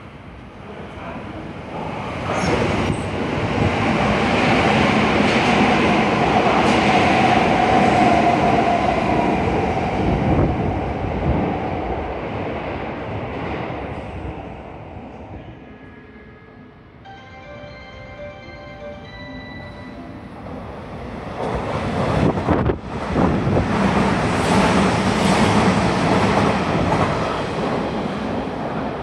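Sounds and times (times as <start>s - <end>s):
train rumble and wheel clatter: 0.0s - 17.5s, 18.2s - 29.0s
train whine: 15.4s - 27.9s.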